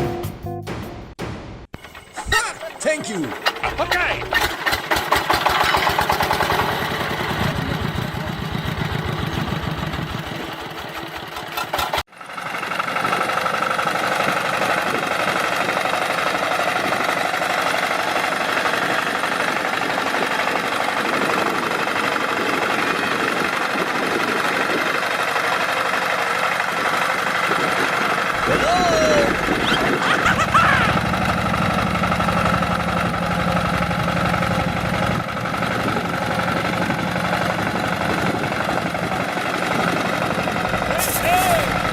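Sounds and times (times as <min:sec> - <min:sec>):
small motor running: 0:27.5 - 0:33.0, 0:38.1 - 0:41.9.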